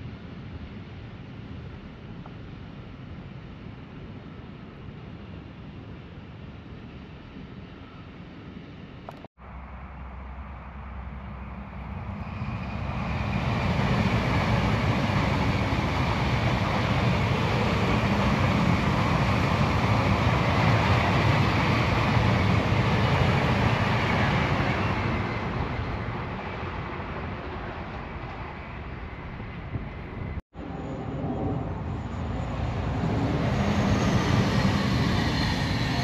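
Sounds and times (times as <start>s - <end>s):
electric train wheels on rails: 11.2s - 36.0s.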